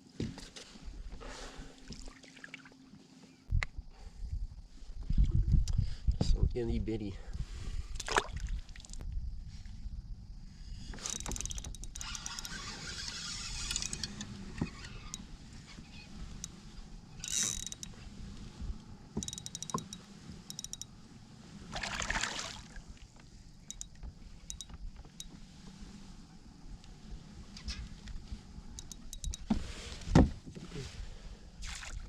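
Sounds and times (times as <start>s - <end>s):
fishing reel clicking and whirring: 10.9s - 15.3s, 15.9s - 18.0s, 19.2s - 21.0s, 23.6s - 25.3s, 28.8s - 29.5s.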